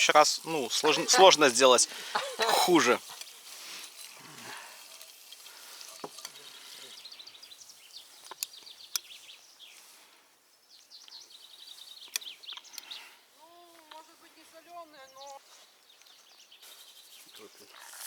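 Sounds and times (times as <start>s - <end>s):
campfire hissing and crackling: 0.0s - 10.5s
songbirds trilling: 0.0s - 18.0s.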